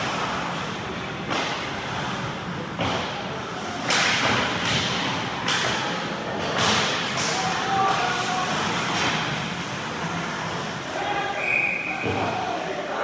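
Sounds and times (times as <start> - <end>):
ice rink background noise: 0.0 - 13.0
hockey sticks and puck cracking: 2.7 - 10.9.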